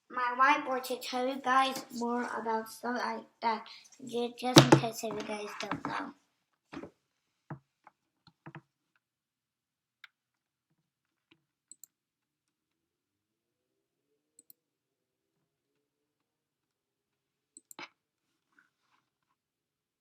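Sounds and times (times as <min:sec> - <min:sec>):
faint clicks and taps: 0:04.6 - 0:06.1.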